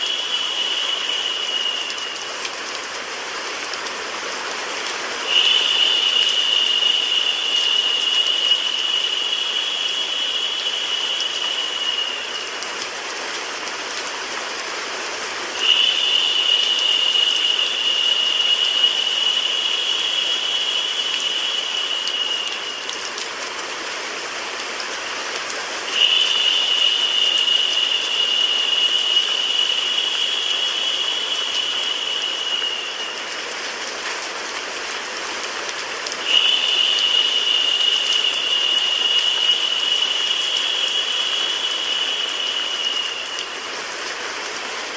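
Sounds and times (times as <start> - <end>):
bright high hiss: 0.0 - 2.5, 5.2 - 12.7, 15.5 - 23.2, 25.9 - 33.5, 36.2 - 43.8
rain: 0.0 - 44.9
white noise hiss: 0.0 - 44.9.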